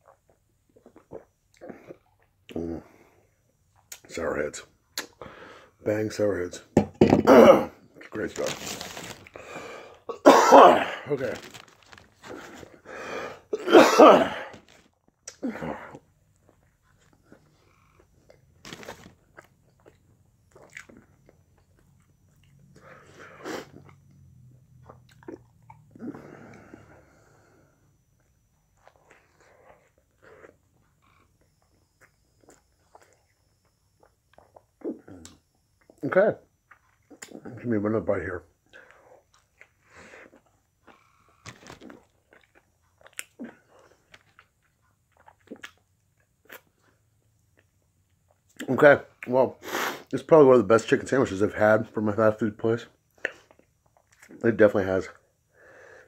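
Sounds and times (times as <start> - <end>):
person chewing sandwich: 14.3 - 26.8, 28.0 - 36.0, 38.7 - 48.7
person chewing with wet mouth clicks: 24.8 - 25.9, 42.3 - 46.7.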